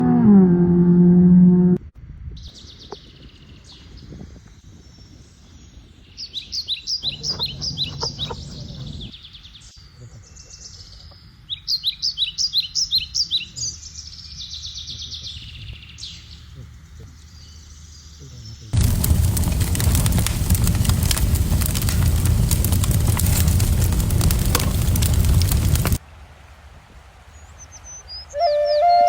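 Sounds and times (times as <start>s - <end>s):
low steady background rush: 18.8s - 27.8s.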